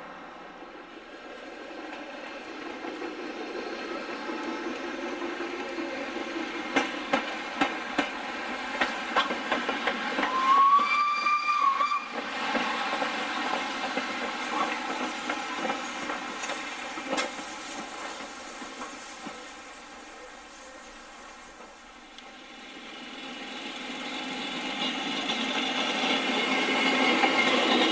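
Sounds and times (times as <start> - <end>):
steam hiss: 0.0 - 27.9
train noise: 0.0 - 27.9
steam locomotive whistle blast: 10.1 - 13.6.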